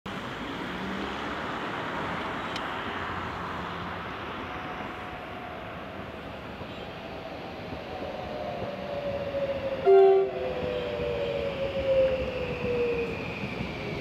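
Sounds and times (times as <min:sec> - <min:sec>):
electric train rushing: 0:03.0 - 0:14.0.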